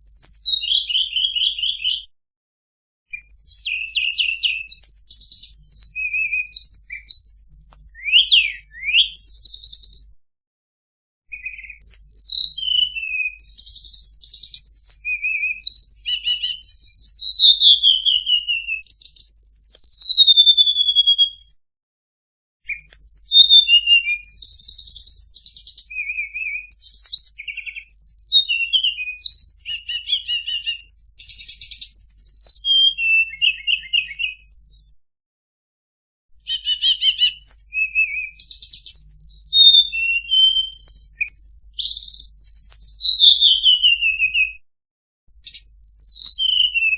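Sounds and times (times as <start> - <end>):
flycatcher song: 11.7 - 20.1.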